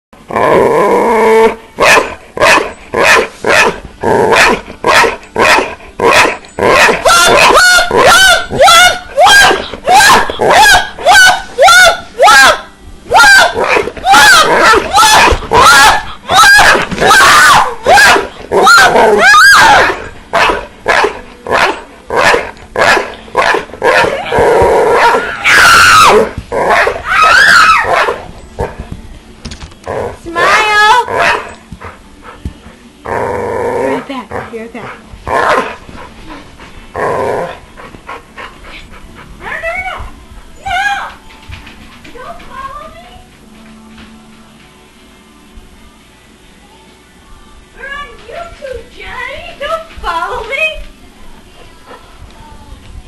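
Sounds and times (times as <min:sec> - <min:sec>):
dog barking: 0:01.8 - 0:24.2, 0:30.4 - 0:31.5
dog yelping: 0:01.8 - 0:28.7, 0:30.4 - 0:31.5.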